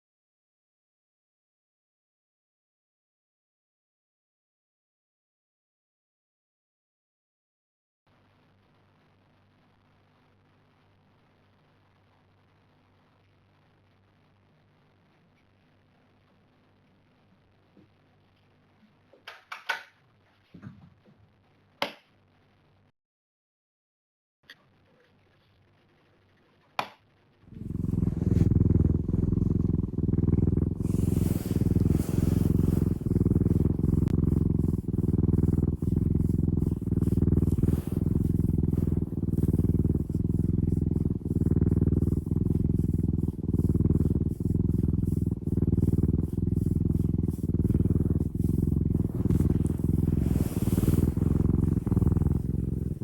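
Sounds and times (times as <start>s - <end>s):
cat purring loudly: 27.5s - 53.0s.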